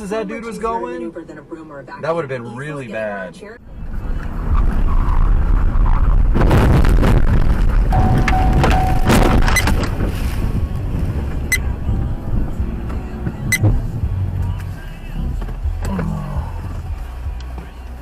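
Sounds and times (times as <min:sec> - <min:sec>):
moving car rumble: 0:03.4 - 0:18.0
steady tone: 0:07.9 - 0:09.6.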